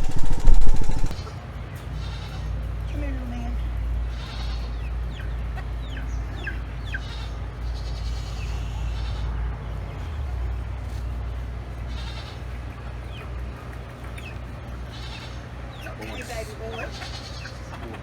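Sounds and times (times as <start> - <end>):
steady low rumble: 0.0 - 1.8
bleating calls: 0.0 - 2.8, 3.6 - 9.8, 11.8 - 12.8, 14.8 - 17.8.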